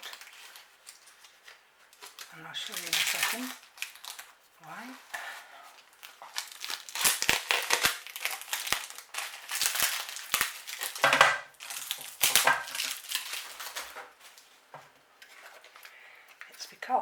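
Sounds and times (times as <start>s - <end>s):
packaging wrap crinkling: 0.0s - 16.5s.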